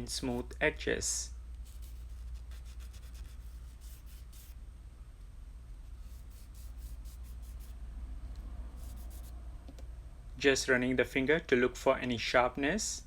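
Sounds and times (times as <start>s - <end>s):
low hum: 0.0s - 12.0s
sanding block rubbing resin: 1.7s - 4.6s, 6.0s - 7.8s, 8.8s - 9.3s.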